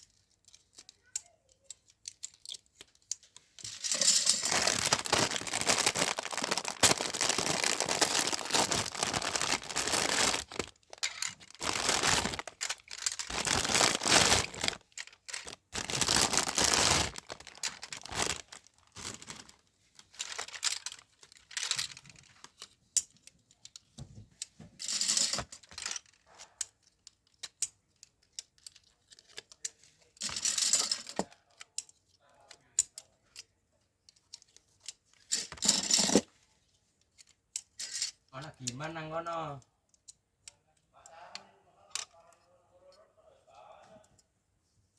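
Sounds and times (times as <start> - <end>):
packaging torn and crinkled: 3.9 - 22.0.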